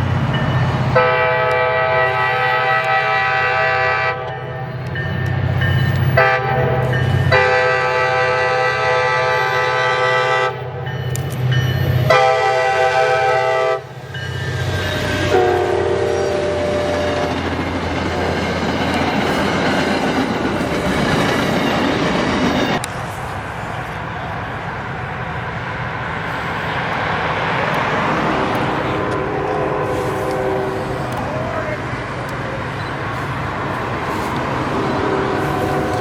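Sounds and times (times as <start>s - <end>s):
train rumble and wheel noise: 0.0s - 36.0s
locomotive air horn blasts: 1.0s - 4.6s, 6.2s - 10.8s, 12.0s - 13.9s, 15.2s - 17.4s, 28.9s - 31.2s, 35.0s - 36.0s.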